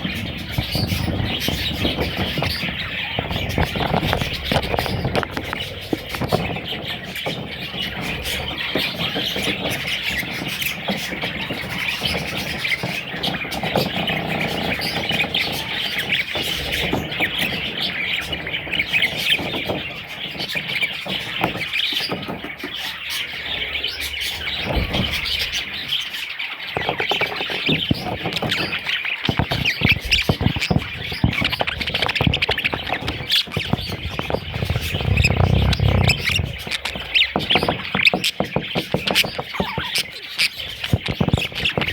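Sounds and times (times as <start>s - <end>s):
budgerigars chirping: 0.0s - 41.9s
low knocks and bumps: 29.3s - 39.9s.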